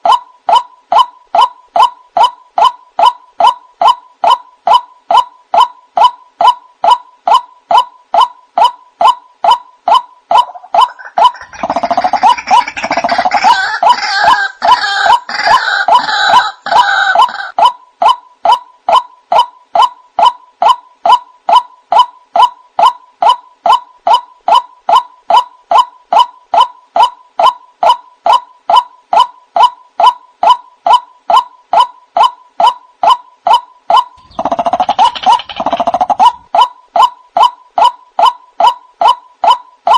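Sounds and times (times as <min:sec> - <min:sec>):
bird repeated call: 0:00.0 - 0:17.6, 0:18.5 - 0:39.9
harsh croaking bird calls: 0:00.0 - 0:17.6, 0:32.2 - 0:39.9.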